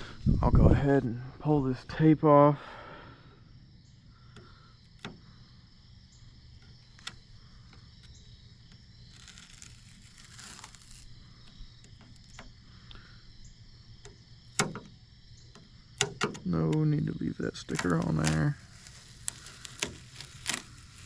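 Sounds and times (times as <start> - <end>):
masking tape peeling off: 7.9 - 12.5, 17.6 - 21.0.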